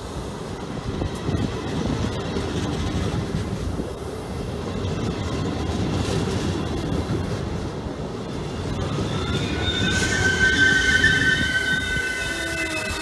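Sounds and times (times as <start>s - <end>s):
train rumbling past: 0.0s - 13.0s
wheel squeal: 8.7s - 13.0s.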